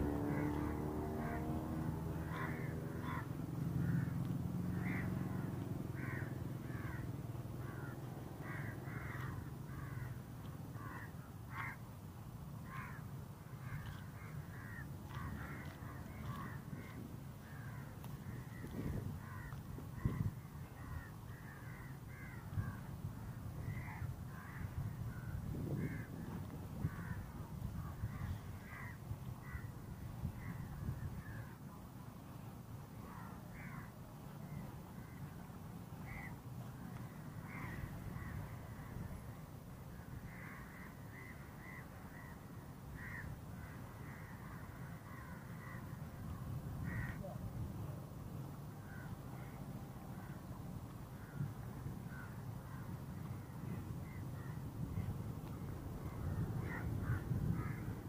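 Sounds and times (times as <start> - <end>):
birds calling: 2.2 - 11.8, 51.2 - 58.0.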